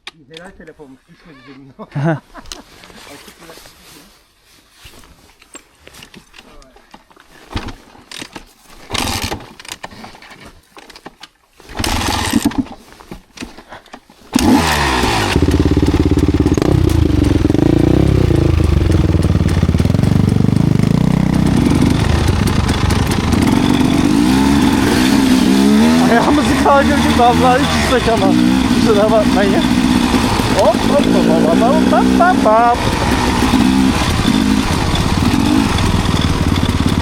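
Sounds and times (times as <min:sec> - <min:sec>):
dirt bike engine revving: 0:11.7 - 0:12.6, 0:14.3 - 0:37.0.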